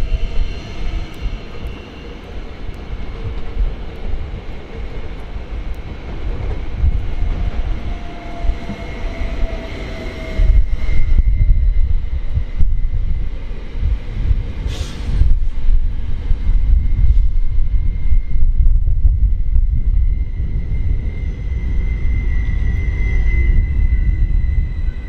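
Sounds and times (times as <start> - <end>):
electric train rumbling on tracks: 0.0 - 25.0
brief hiss: 14.7 - 15.2.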